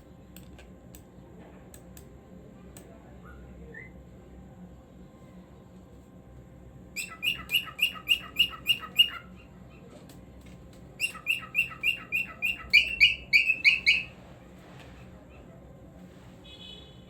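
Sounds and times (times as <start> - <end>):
cockatiel chirping: 7.0 - 9.4, 11.0 - 14.1.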